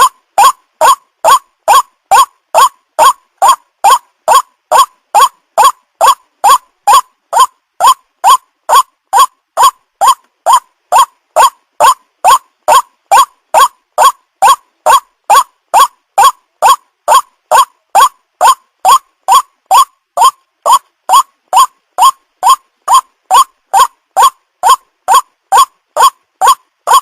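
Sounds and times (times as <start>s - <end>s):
waterhen calling: 0.0s - 27.0s.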